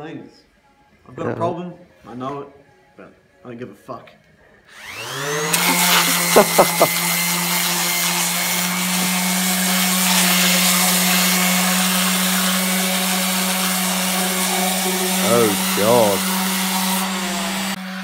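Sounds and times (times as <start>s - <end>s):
electric power tool spinning: 4.7s - 18.0s.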